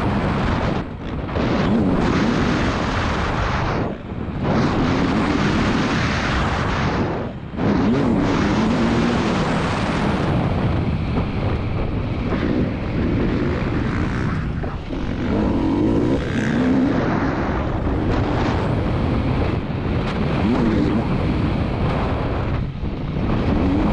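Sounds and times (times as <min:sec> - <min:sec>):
motocross engine revving: 0:12.2 - 0:18.4.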